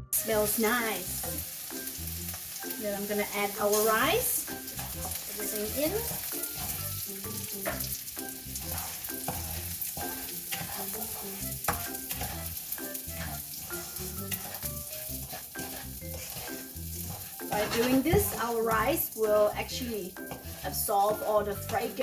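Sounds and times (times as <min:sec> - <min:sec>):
rice sizzling in oil: 0:00.1 - 0:22.0
utensil scraping and knocking pan: 0:04.6 - 0:08.0, 0:08.6 - 0:22.0.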